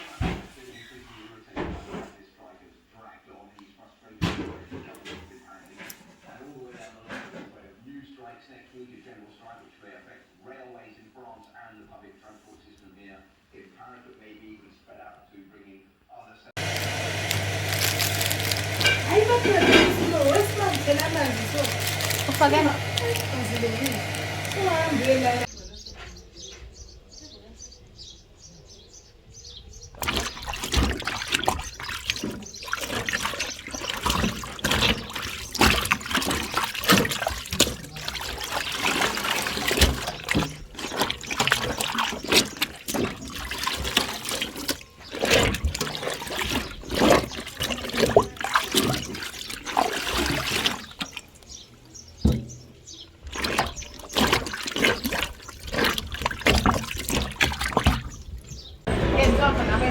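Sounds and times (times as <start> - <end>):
water running and splashing: 16.6 - 25.5, 30.0 - 52.6, 53.2 - 59.9.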